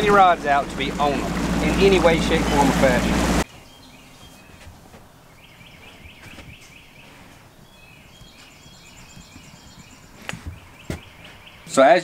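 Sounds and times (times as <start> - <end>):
low background rumble: 0.0 - 3.4
birds chirping faintly: 0.0 - 12.0.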